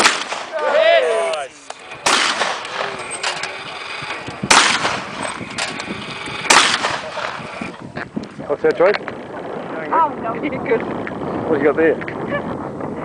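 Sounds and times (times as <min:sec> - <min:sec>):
shotgun shots with echo: 0:00.0 - 0:00.6, 0:02.0 - 0:03.4, 0:04.4 - 0:05.3, 0:06.4 - 0:07.5
faint distant gunshots: 0:00.0 - 0:00.7, 0:01.8 - 0:03.4, 0:04.4 - 0:05.7, 0:06.4 - 0:07.6.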